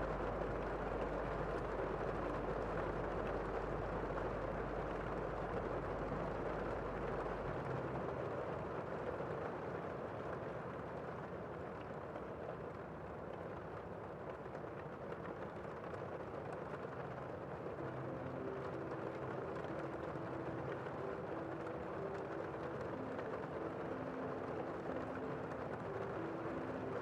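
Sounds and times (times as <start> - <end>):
low hum: 0.0 - 10.0
gentle rain hiss: 0.0 - 27.0.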